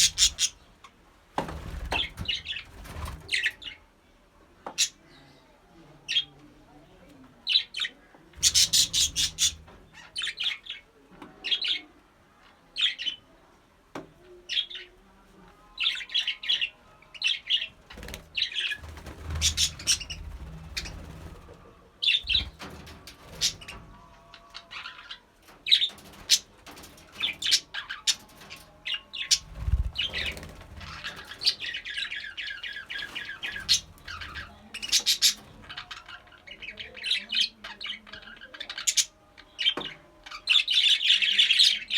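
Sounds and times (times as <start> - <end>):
budgerigars chirping and squawking: 0.0 - 0.7, 1.6 - 3.8, 7.5 - 10.8, 15.8 - 41.9.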